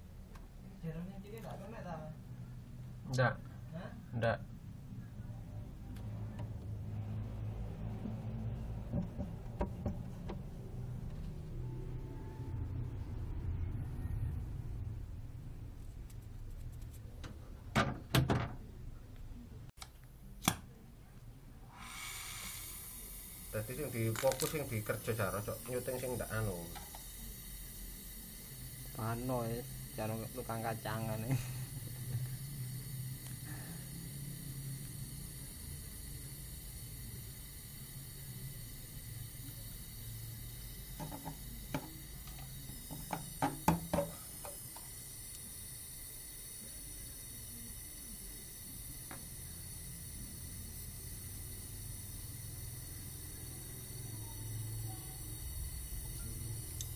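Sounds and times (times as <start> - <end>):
sharp knocks and clicks: 8.9 - 10.5
steady hiss: 21.6 - 56.9.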